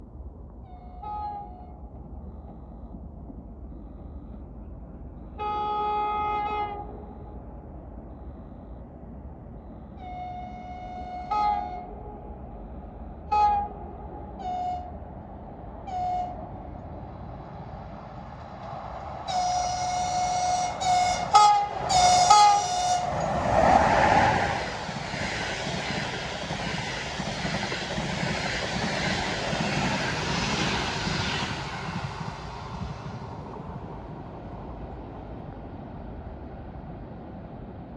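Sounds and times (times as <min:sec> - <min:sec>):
train rushing and rolling: 0:00.0 - 0:37.9
locomotive horn blast: 0:05.4 - 0:07.2, 0:10.0 - 0:12.2, 0:13.3 - 0:15.0, 0:19.2 - 0:24.6.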